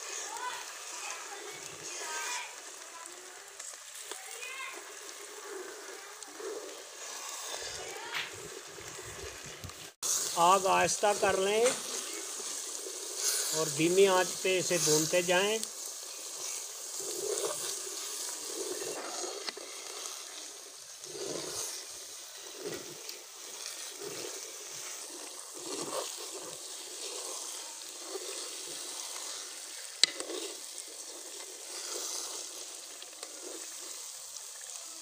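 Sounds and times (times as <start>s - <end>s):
semolina sizzling in a pan: 0.0s - 35.0s
metal spatula scraping a pan: 10.0s - 34.8s.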